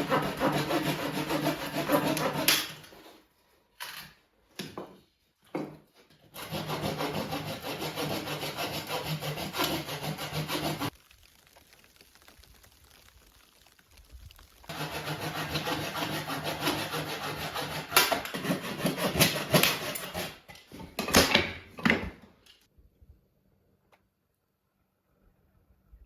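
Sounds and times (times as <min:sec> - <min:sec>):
rasping scraping on wood: 0:00.0 - 0:03.1, 0:06.3 - 0:10.9, 0:14.7 - 0:20.6.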